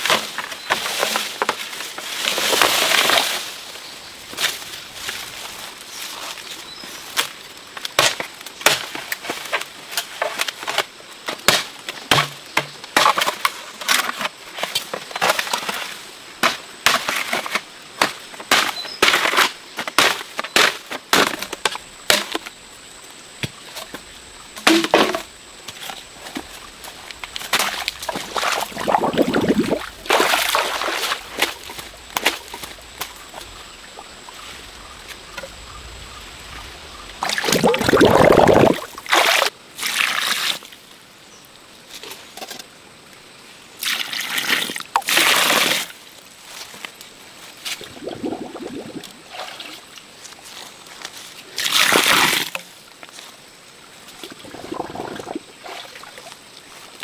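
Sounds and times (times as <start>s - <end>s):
sharp knocks and cracks: 10.3s - 14.1s.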